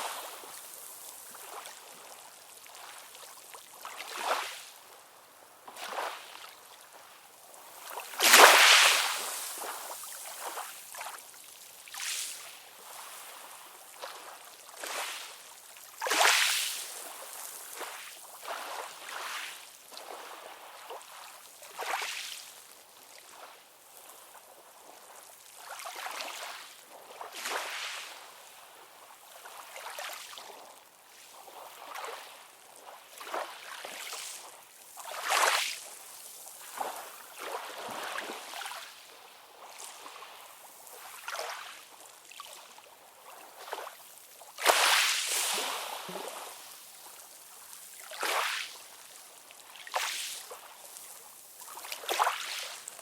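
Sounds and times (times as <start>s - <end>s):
small sea waves splashing: 5.7s - 7.0s, 7.6s - 11.2s, 43.4s - 53.0s.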